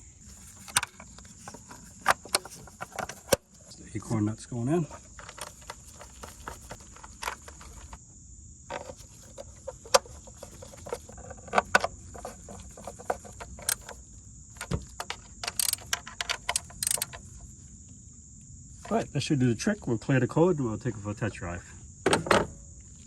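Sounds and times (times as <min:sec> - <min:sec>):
metallic clicks of hand tool: 0:15.0 - 0:17.2.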